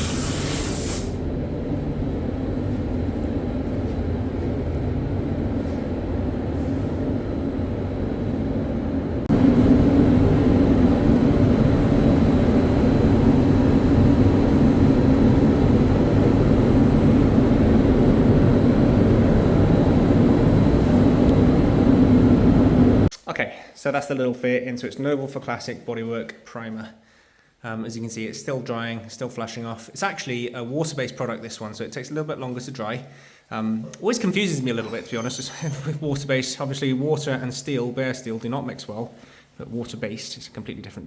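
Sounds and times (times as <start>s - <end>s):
workshop machine droning: 0.0s - 23.1s.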